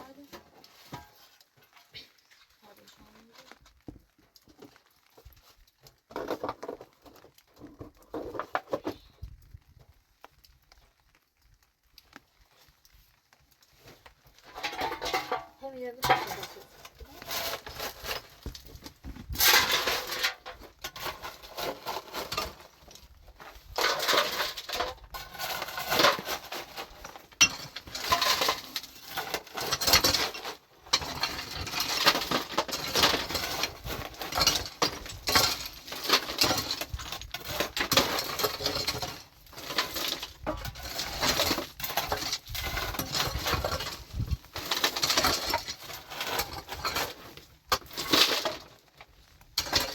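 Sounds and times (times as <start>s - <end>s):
hard objects clattering: 14.4s - 49.9s.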